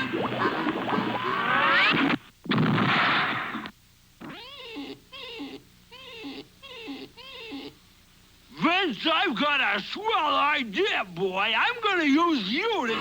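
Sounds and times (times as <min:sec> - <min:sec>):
cartoon crash: 0:00.0 - 0:04.4
cat-like meowing cries: 0:04.3 - 0:07.7.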